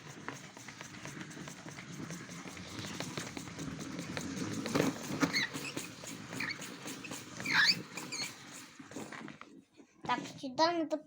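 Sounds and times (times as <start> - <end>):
toy washing machine running: 0.0 - 10.3
short high squeaks: 5.2 - 8.7.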